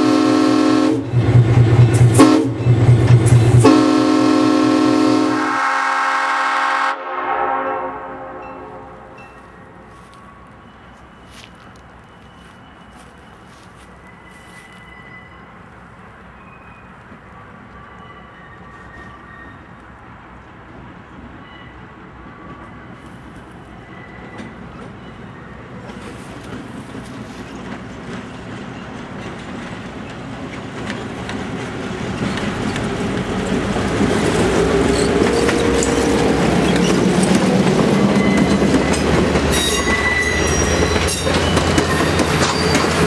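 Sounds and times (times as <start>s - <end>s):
diesel locomotive passing: 0.0s - 43.0s
train wheels clattering over rail joints: 1.1s - 3.7s, 25.8s - 43.0s
high wheel squeals: 9.2s - 20.0s, 23.6s - 26.4s, 32.1s - 43.0s.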